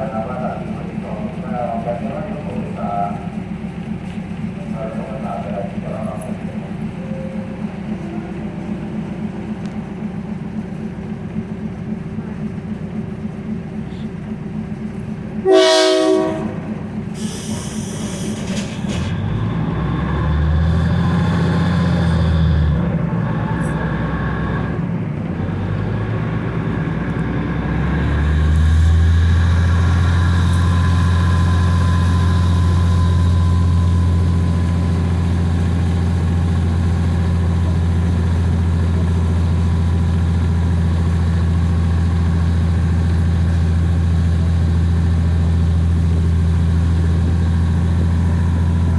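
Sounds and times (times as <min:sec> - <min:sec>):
diesel locomotive engine droning: 0:00.0 - 0:48.9
train horn blast: 0:15.4 - 0:18.3.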